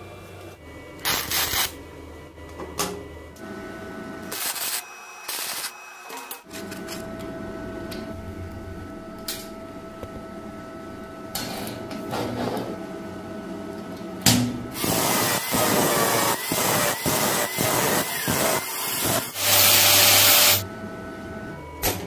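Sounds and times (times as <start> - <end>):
small motor whirring: 14.8 - 20.6.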